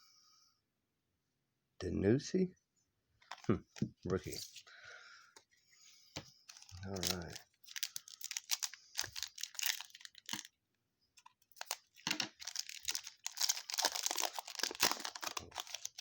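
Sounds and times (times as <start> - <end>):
foil wrapper tearing and crinkling: 6.5 - 10.5, 11.2 - 16.0.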